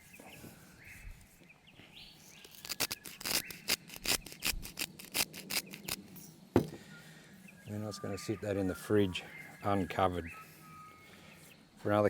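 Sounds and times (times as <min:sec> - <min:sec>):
gritty salt scraping on skin: 0:02.3 - 0:06.2.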